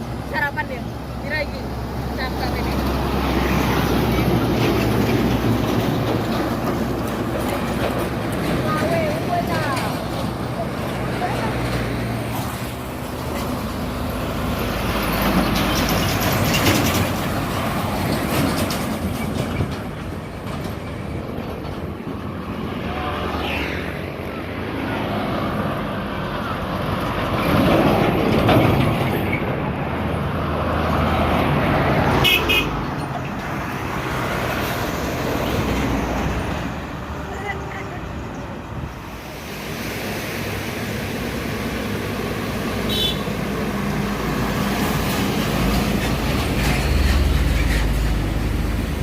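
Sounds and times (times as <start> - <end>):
trucks passing on highway: 0.0 - 49.0
vehicle horn toot: 32.2 - 32.8, 42.9 - 43.3.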